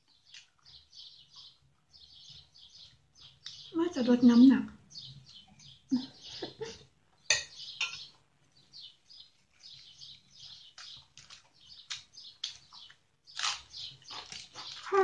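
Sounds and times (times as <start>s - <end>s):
chewing crispy fried chicken: 0.0s - 3.7s, 8.9s - 15.0s.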